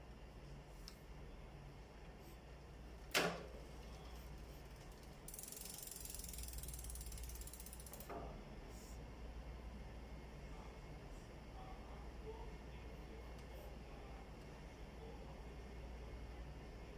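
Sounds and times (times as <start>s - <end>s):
bicycle freewheel ticking: 3.6s - 8.2s.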